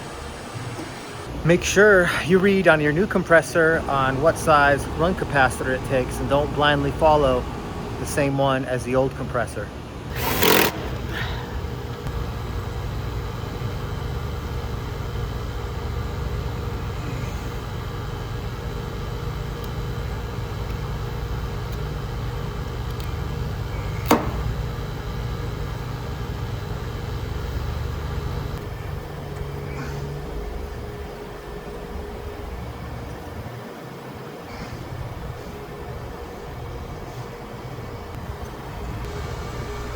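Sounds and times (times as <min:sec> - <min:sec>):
vacuum pump humming: 0:09.7 - 0:39.9
sharp click: 0:24.0 - 0:24.5.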